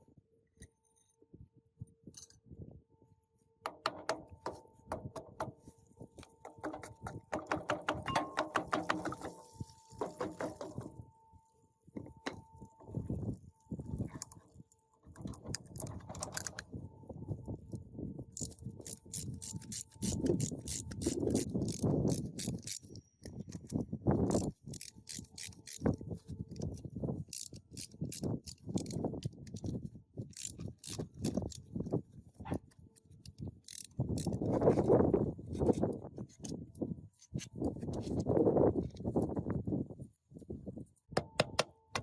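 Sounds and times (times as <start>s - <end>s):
tools scraping metal: 3.7s - 11.0s
hand tools clicking on metal: 6.2s - 11.0s, 18.4s - 26.0s
ratchet ratcheting: 18.4s - 26.0s, 27.3s - 29.7s, 30.3s - 31.6s, 33.6s - 34.4s.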